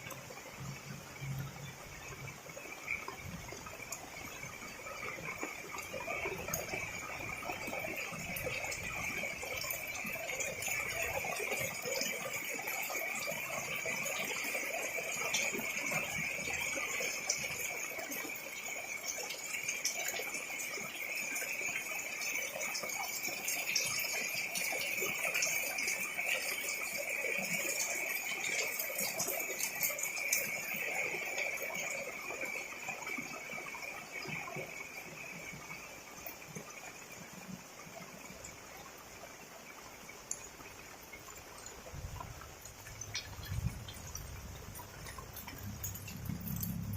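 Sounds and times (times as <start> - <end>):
heavy rain falling: 41.5 - 46.9.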